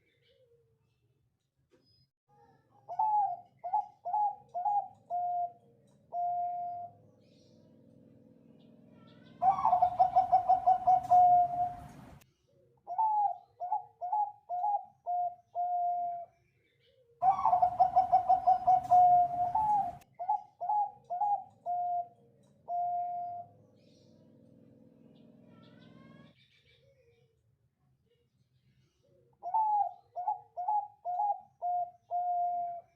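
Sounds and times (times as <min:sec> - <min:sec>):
dove cooing: 0:02.9 - 0:07.1, 0:09.0 - 0:12.2, 0:12.9 - 0:16.3, 0:17.2 - 0:23.6, 0:29.4 - 0:32.9.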